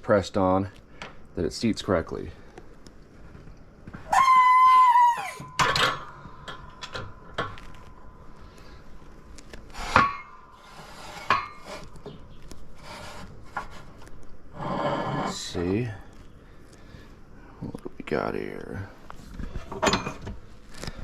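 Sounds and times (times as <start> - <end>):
metal parts clanking: 19.6 - 20.4.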